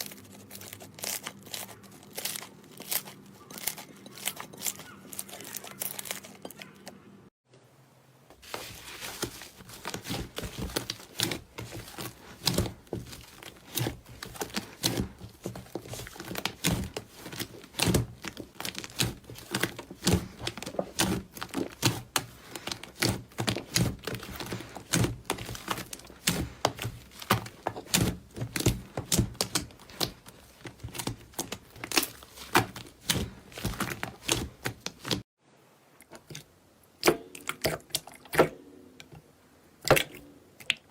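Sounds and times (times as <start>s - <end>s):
slime crackling and popping: 8.8s - 35.2s.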